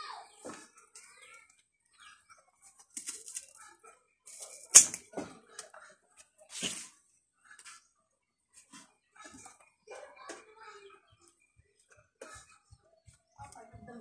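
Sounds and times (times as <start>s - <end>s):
sharp cracks: 4.6s - 5.1s.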